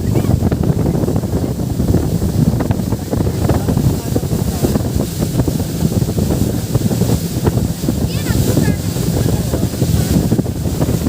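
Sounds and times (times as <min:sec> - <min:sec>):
rushing water: 0:00.0 - 0:11.0
wind buffeting microphone: 0:00.0 - 0:11.0.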